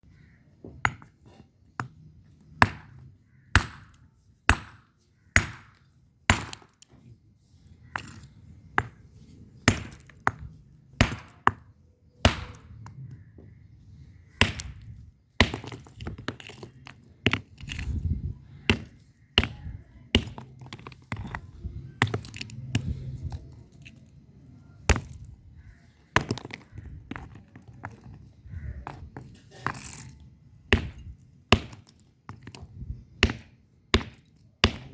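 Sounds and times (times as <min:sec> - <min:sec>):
bricks clacking together: 0:14.4 - 0:24.1, 0:26.0 - 0:34.9.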